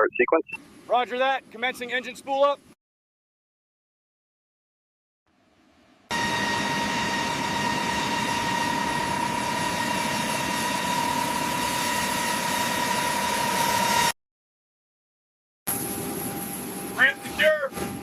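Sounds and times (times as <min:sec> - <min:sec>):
turbine engine whine: 0:06.1 - 0:14.1, 0:15.7 - 0:18.0.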